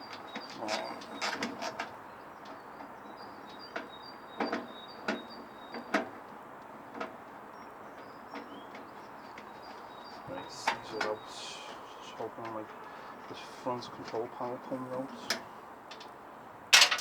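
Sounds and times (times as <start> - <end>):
clicks and knocks of parts: 15.2 - 17.0.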